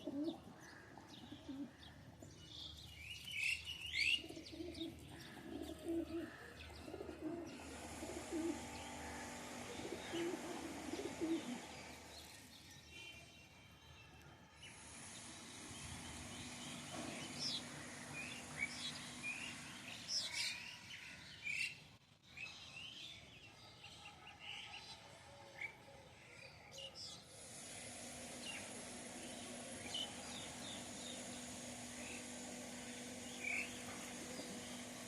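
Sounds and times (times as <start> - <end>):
birds chirping: 0.0 - 23.5, 26.4 - 35.0
steady background hiss: 2.4 - 13.2, 27.2 - 35.0.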